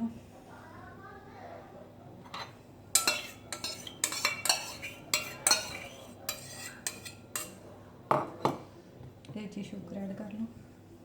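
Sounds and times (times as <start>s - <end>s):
spoon clinking and scraping a bowl: 2.3s - 8.6s.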